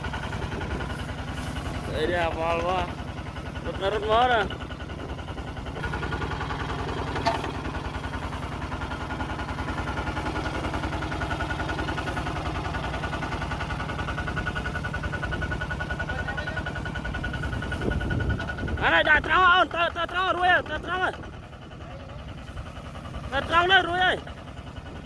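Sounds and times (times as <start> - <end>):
tractor engine chugging: 0.0 - 25.0.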